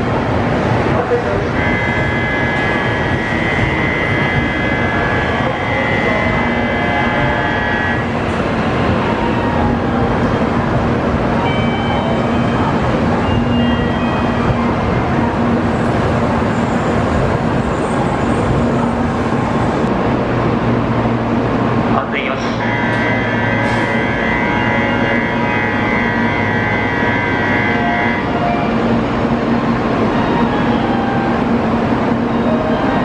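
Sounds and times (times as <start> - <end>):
train blowers rushing air: 0.0 - 11.6, 22.6 - 33.0.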